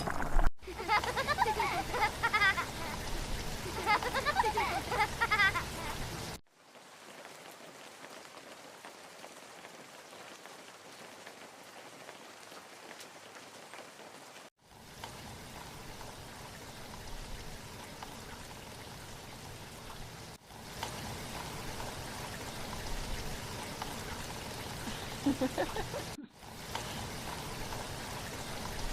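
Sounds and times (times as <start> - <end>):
steady rain falling: 0.3 - 28.9.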